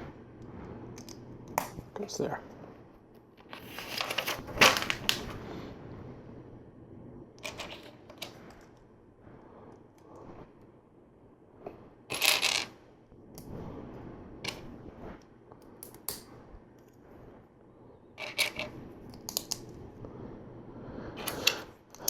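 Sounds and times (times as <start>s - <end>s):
plastic pieces clattering: 3.4s - 5.3s.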